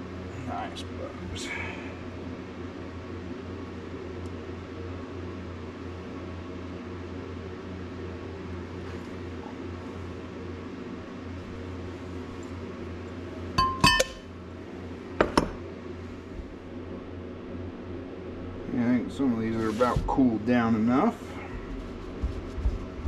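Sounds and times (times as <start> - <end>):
steady low hum: 0.0 - 23.0
hard containers clinking together: 13.6 - 14.3.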